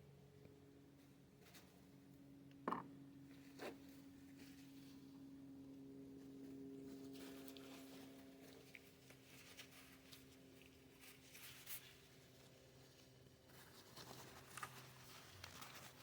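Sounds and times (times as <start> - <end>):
faint steady hum: 0.0 - 16.0
light scratches and ticks: 6.2 - 16.0.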